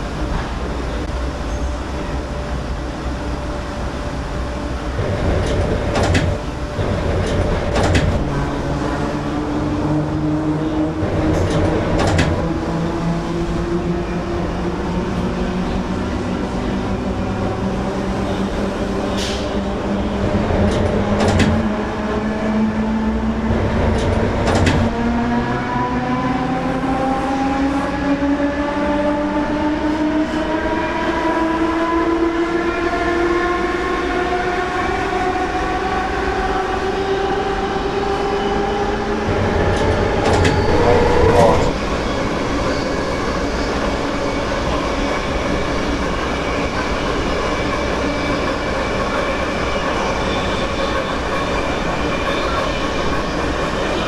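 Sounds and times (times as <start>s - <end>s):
sharp knocks and clicks: 5.4s - 6.4s, 11.3s - 12.4s, 20.6s - 21.7s, 23.9s - 24.9s
electric train motors whining: 33.6s - 54.0s.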